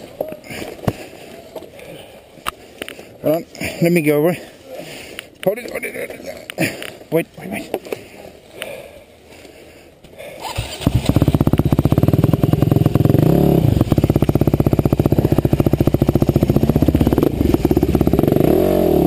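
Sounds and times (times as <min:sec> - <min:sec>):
motorcycle engine running: 0:10.6 - 0:19.0.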